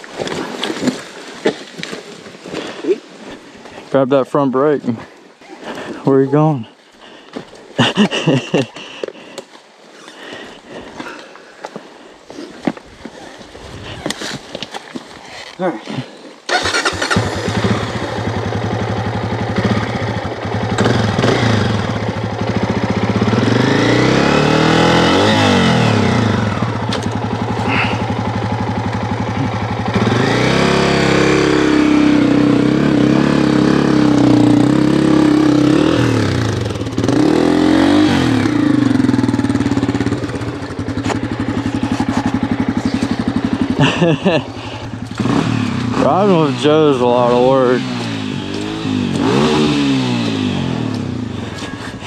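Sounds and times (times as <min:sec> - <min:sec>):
dirt bike engine revving: 0:16.5 - 0:52.0.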